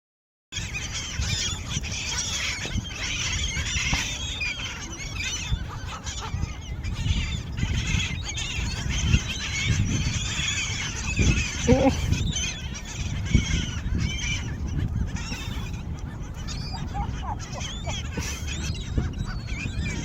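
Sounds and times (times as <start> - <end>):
seagulls squawking: 0.6 - 20.0.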